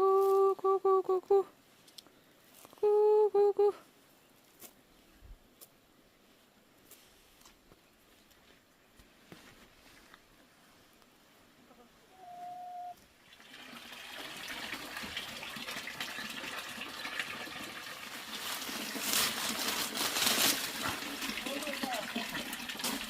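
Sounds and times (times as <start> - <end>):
whistle-like tone: 12.1 - 13.0
water trickling: 13.1 - 23.0.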